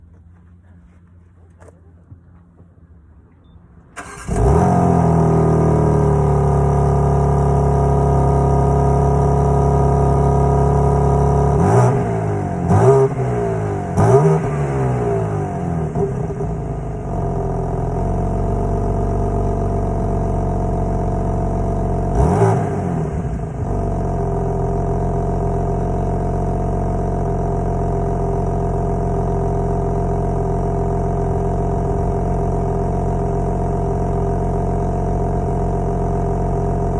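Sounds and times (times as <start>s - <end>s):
engine cranking and firing: 3.8s - 6.3s
car engine idling and revving: 3.9s - 36.9s.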